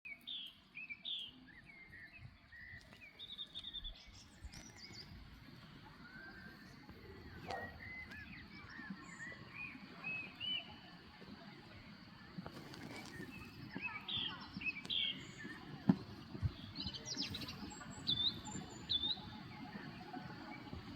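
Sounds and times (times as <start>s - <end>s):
birds chirping and calling: 2.7s - 10.8s.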